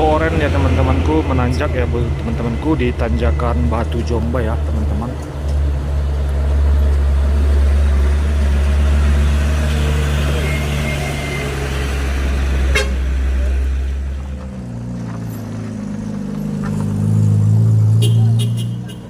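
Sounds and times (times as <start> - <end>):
heavy truck engine droning: 0.0 - 19.0.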